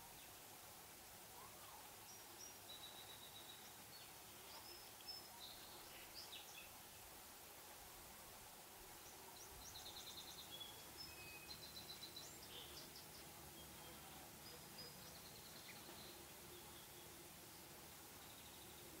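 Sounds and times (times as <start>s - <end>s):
low background hiss: 0.0s - 19.0s
faint high bird calls: 1.4s - 3.8s.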